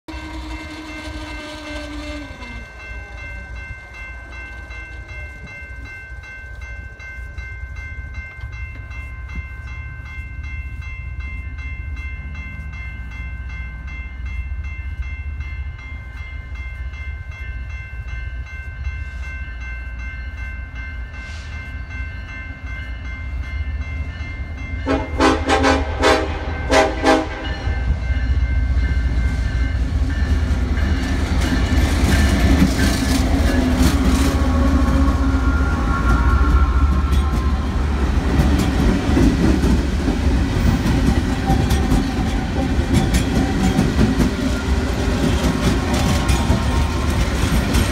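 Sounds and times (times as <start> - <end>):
train horn blasts: 0.1 - 3.2, 24.8 - 27.9
crossing warning bell ringing: 0.1 - 47.9
diesel locomotives rumbling: 0.1 - 47.9.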